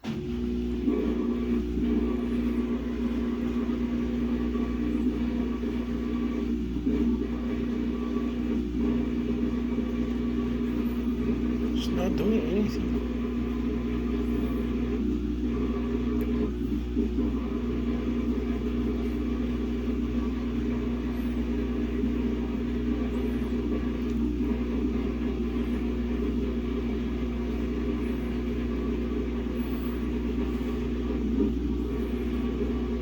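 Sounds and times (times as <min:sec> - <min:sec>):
washing machine hum and rumble: 0:00.0 - 0:33.0.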